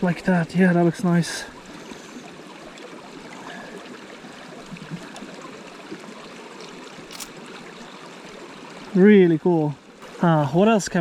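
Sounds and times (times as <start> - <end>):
stream water running: 0.0 - 11.0
brief click: 7.1 - 7.3.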